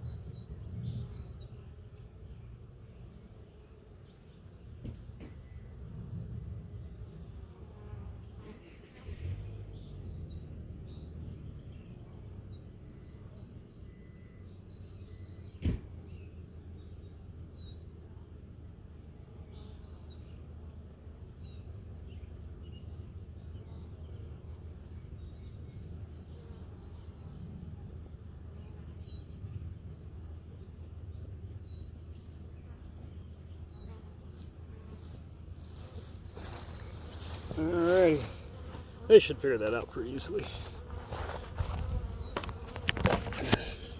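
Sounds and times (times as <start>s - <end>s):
small birds chirping: 0.0s - 17.9s, 18.6s - 43.9s
low outdoor rumble: 29.2s - 43.9s.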